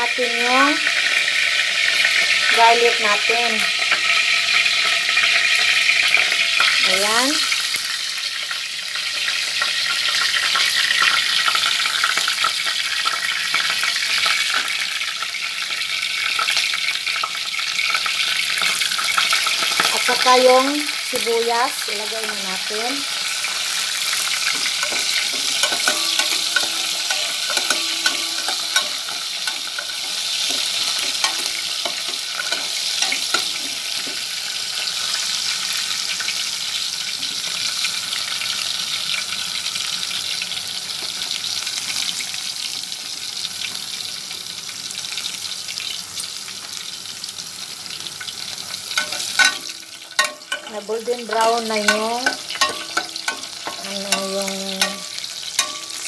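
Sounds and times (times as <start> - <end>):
garlic sizzling in oil: 0.0 - 56.0
metal turner scraping a pan: 22.0 - 35.3, 48.9 - 56.0.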